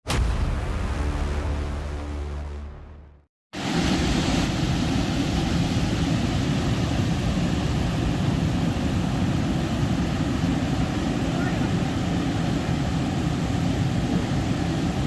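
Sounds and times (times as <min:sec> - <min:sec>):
heavy low rumble: 0:00.0 - 0:06.0
strong wind: 0:03.6 - 0:15.0.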